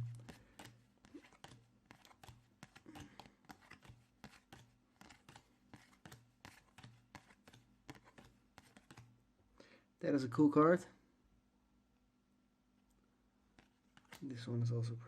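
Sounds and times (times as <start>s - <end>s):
trading cards being sorted: 0.0s - 9.1s, 13.6s - 14.3s.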